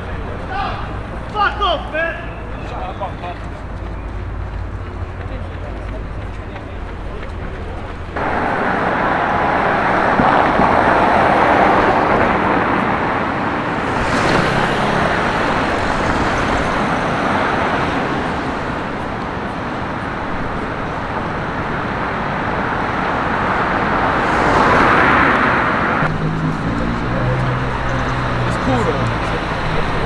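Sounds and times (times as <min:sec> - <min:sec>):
passing cars: 0:00.0 - 0:30.0.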